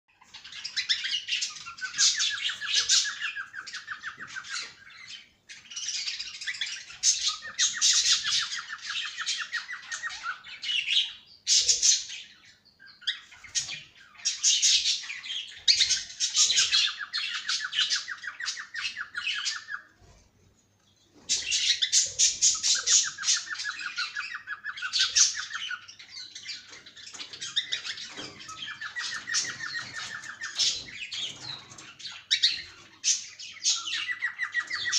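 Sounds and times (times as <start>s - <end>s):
cockatiel chirping and squawking: 0.2s - 12.4s, 13.0s - 19.9s, 21.2s - 34.9s.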